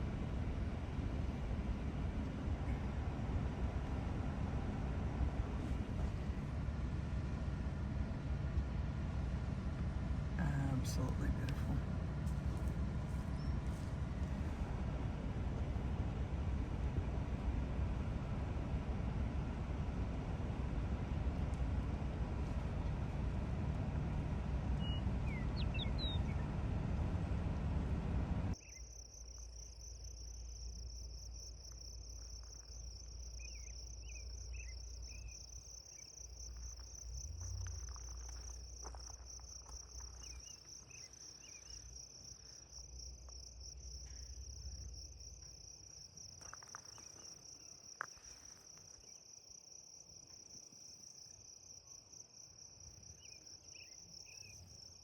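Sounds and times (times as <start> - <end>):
loud rumbling noise: 0.0 - 28.6
insects trilling: 28.5 - 55.0
faint bird chirps: 28.6 - 29.5, 32.2 - 36.9.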